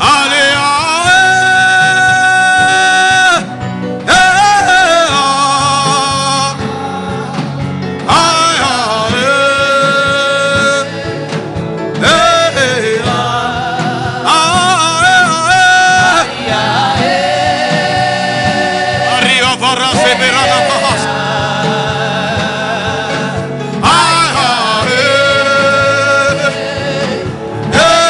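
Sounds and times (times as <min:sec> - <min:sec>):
instrumental backing: 0:00.0 - 0:28.0.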